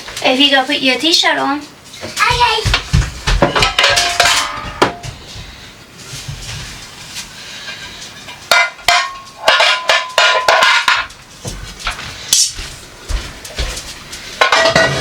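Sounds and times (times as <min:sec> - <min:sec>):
dishes clinking and clattering: 0:03.3 - 0:05.2, 0:07.7 - 0:11.2, 0:14.4 - 0:15.0.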